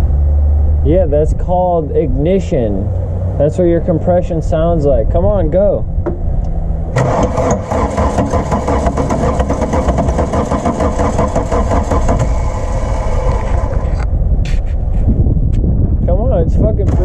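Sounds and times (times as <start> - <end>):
starter cranking diesel engine: 6.9 - 14.1.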